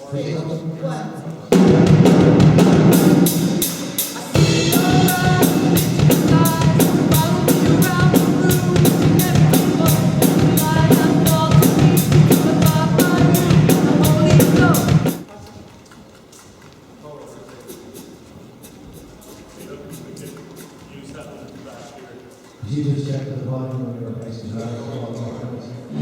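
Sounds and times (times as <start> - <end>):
drum kit steady beat: 1.5 - 15.3, 17.4 - 21.6
band playing pop-rock song: 1.9 - 15.2.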